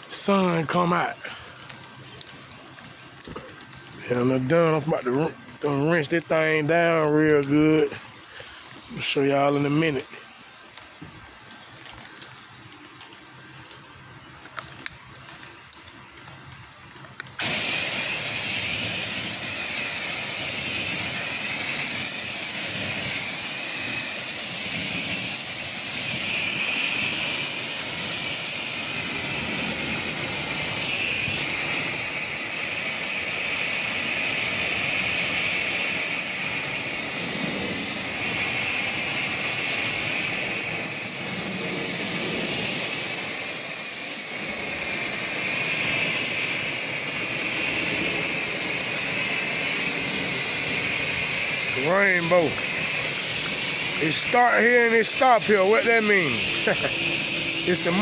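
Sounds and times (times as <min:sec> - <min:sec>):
pressure washer spray hissing: 0:00.0 - 0:01.7, 0:17.4 - 0:58.0.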